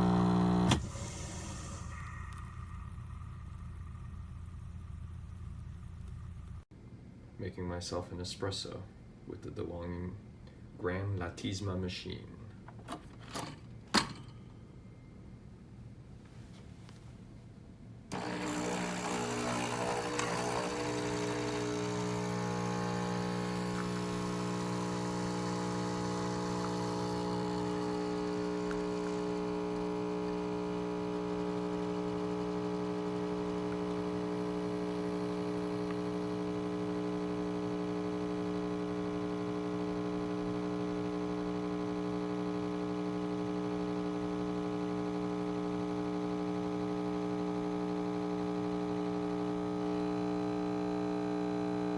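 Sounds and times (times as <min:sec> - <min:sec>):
espresso machine pump buzzing: 0:00.0 - 0:06.6, 0:18.1 - 0:51.9.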